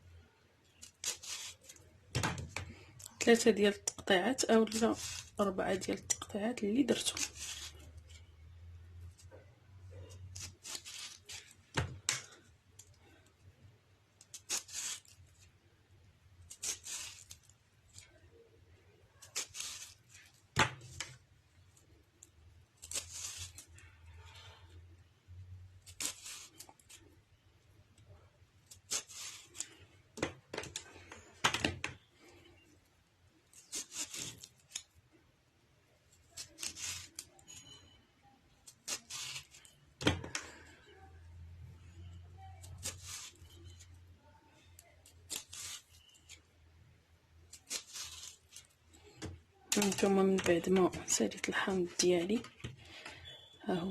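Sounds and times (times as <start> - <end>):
hands rubbing and scraping lemons: 0.7 - 1.9, 4.2 - 8.3, 9.9 - 11.6, 14.2 - 15.5, 16.4 - 18.2, 19.2 - 20.4, 22.8 - 24.4, 25.8 - 27.0, 28.7 - 29.8, 33.5 - 35.0, 36.2 - 37.7, 38.6 - 39.8, 42.6 - 44.0, 45.3 - 46.5, 47.5 - 49.0, 49.7 - 52.5.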